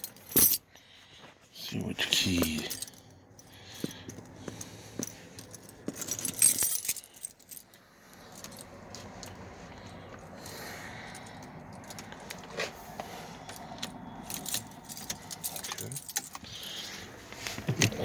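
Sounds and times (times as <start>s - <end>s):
keys jangling: 0.0s - 0.6s, 2.3s - 9.4s, 10.4s - 12.5s, 13.4s - 17.0s.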